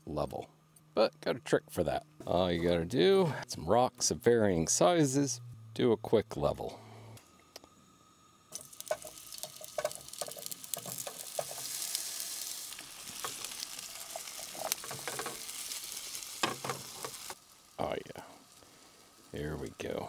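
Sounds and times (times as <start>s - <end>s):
potatoes sizzling in oil: 8.5s - 20.0s
clicks and pops in pan: 8.6s - 11.6s.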